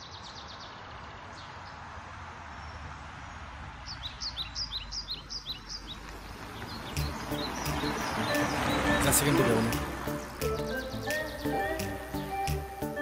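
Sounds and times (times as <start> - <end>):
small bird chirping: 3.8 - 12.7.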